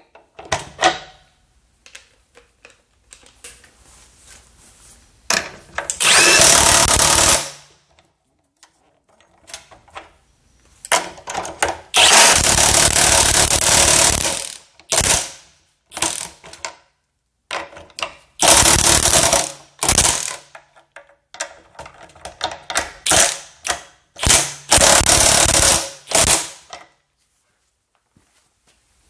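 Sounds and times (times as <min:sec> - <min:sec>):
impact wrench hammering: 0:06.0 - 0:07.6, 0:12.0 - 0:15.4, 0:18.4 - 0:20.4, 0:24.2 - 0:26.7.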